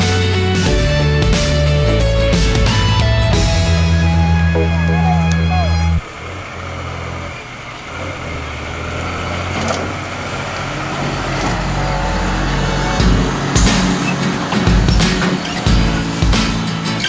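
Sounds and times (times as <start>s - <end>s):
background music: 0.0s - 6.0s, 11.6s - 17.0s
vehicle engine running: 0.0s - 17.0s
road and wind noise: 1.9s - 17.0s.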